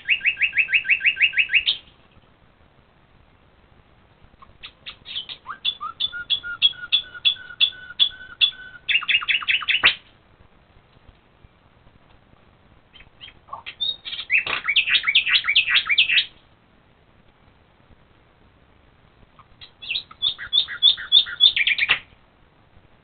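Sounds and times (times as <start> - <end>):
songbird singing high notes: 0.0 - 1.9, 4.6 - 10.0, 12.9 - 16.3, 19.6 - 22.0.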